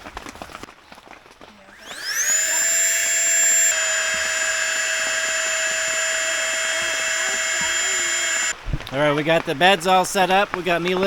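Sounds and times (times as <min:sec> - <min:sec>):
electric air pump whine: 0:01.7 - 0:08.6.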